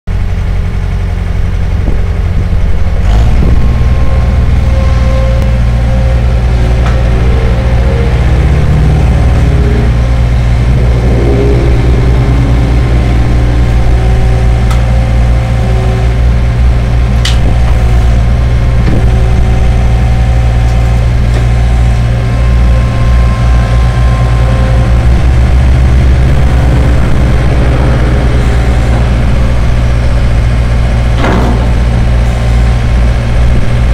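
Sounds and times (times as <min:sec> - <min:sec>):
skid steer loader engine: 0:00.1 - 0:33.9.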